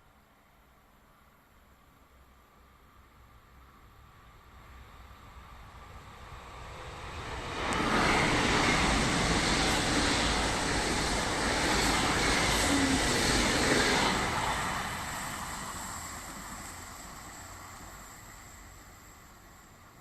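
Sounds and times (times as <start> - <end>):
train wheels rumbling on rails: 4.0 - 20.0.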